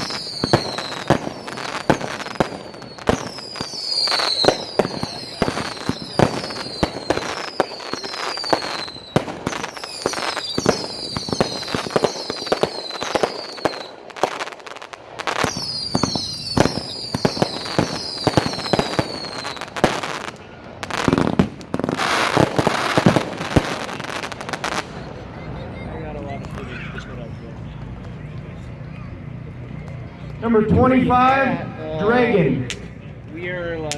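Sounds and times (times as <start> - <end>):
firework whistles falling in pitch: 0.0 - 14.0, 15.4 - 20.2
firework launch shots and bursts: 0.0 - 25.0
firework crackling: 0.0 - 30.6.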